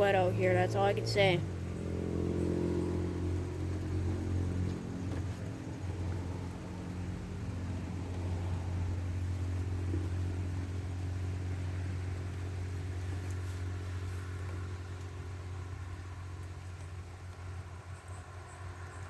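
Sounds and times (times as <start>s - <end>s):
rain falling: 0.0s - 19.0s.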